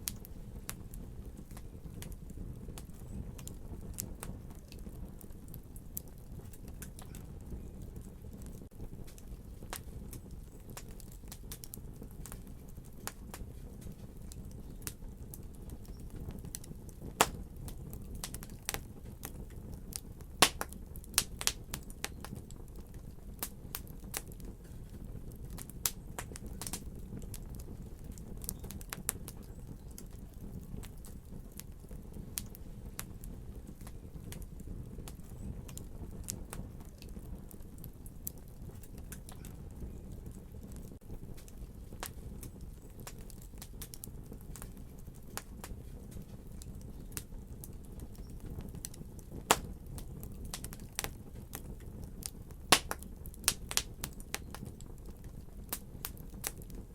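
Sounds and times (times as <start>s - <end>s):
fire low rumble: 0.0s - 56.9s
fire pops and snaps: 0.0s - 56.9s
wood fire crackling: 0.0s - 56.9s.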